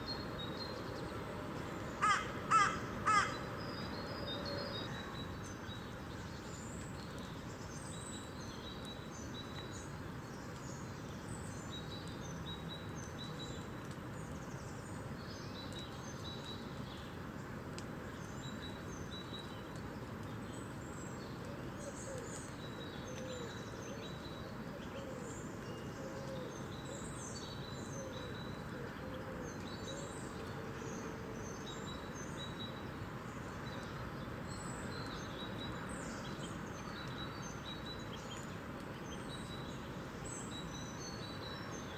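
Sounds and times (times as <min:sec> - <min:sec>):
steady rain hiss: 0:05.3 - 0:41.9.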